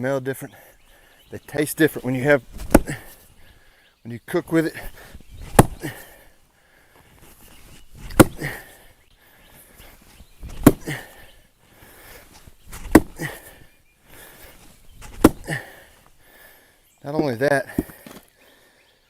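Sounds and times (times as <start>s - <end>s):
axe chopping firewood: 2.2s - 3.2s, 4.8s - 6.2s, 7.9s - 8.8s, 10.4s - 11.3s, 12.0s - 13.6s, 15.0s - 15.9s, 17.7s - 18.2s.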